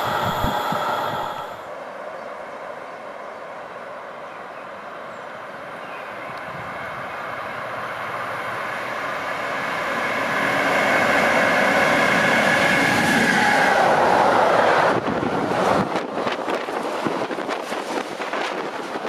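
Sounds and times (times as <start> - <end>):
locomotive high whine: 0.0 - 1.8.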